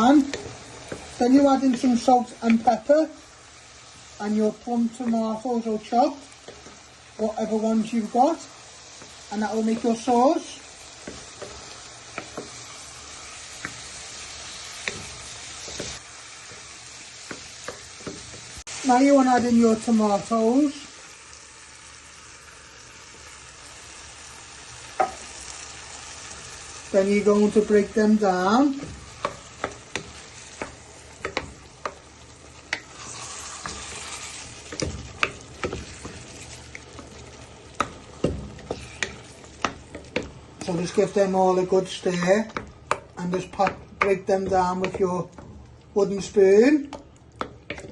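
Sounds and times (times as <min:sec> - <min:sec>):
food sizzling in a pan: 0:00.0 - 0:47.9
spoon knocking against pan: 0:11.0 - 0:12.6, 0:25.0 - 0:25.3, 0:28.7 - 0:32.1, 0:42.4 - 0:45.5.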